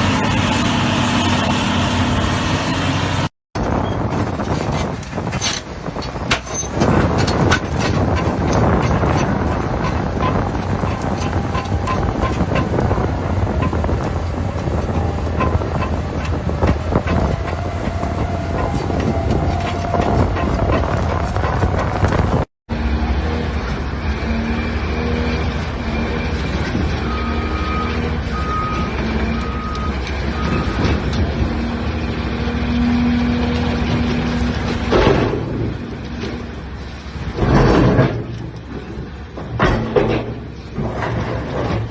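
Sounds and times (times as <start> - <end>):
heavy machinery engine running: 0.0 - 41.9
machinery clanking: 0.0 - 41.9
reversing alarm beeps: 27.1 - 30.8.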